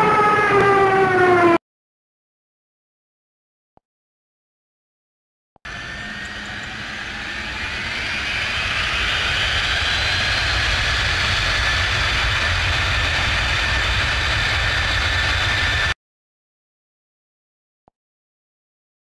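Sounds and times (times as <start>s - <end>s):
jet engine whine: 0.0s - 1.6s, 5.7s - 16.0s
low rumble: 5.7s - 16.0s.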